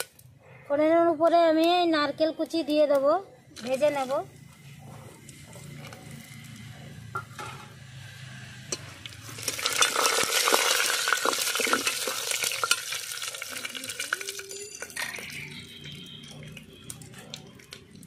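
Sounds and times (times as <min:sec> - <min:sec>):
food sizzling and crackling: 0:00.0 - 0:00.2, 0:05.2 - 0:18.0
metallic clinks: 0:14.1 - 0:17.2.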